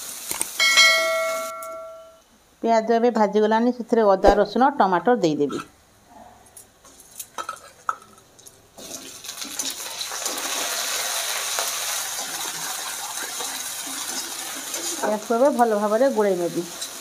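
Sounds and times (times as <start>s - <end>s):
loud sizzle of frying: 0.0s - 1.5s, 6.8s - 17.0s.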